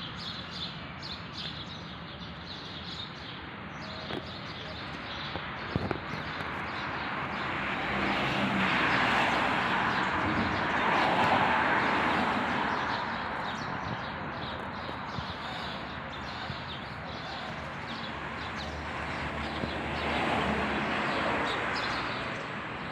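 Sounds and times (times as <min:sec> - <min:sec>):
outdoor background noise: 0:00.0 - 0:22.9.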